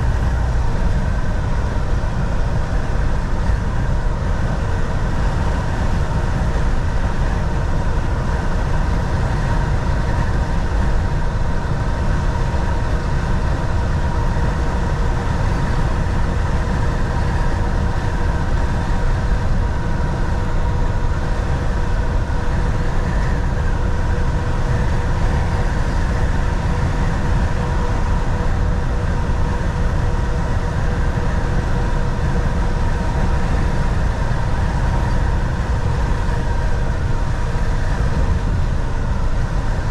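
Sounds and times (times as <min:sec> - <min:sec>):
road rumble: 0:00.0 - 0:39.9
steady hums: 0:00.0 - 0:39.9
truck engine drone: 0:00.0 - 0:39.9.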